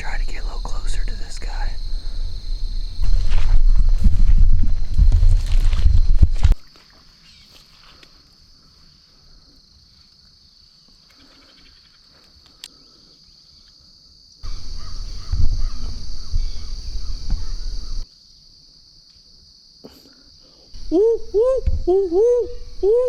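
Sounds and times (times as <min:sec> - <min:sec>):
insects trilling: 0:00.0 - 0:23.0
faint bird calls: 0:14.4 - 0:18.0.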